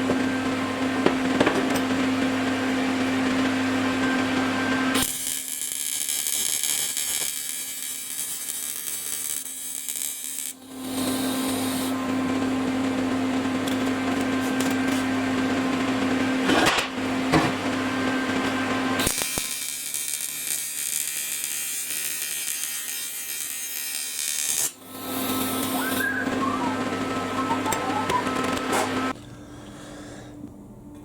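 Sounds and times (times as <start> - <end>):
rotary power tool whining: 18.1 - 29.1.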